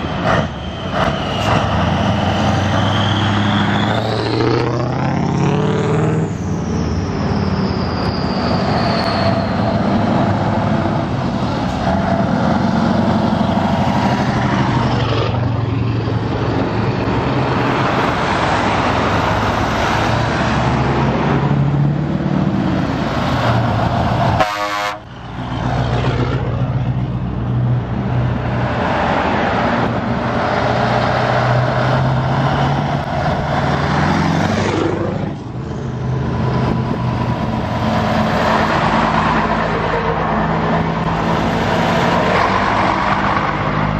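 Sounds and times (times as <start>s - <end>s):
trucks driving past: 0.0s - 43.9s
truck horn toots: 24.4s - 25.1s.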